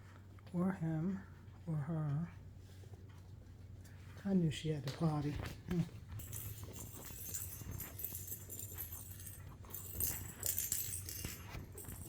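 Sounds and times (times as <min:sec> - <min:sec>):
metallic jingling and rustling: 0:05.8 - 0:12.0.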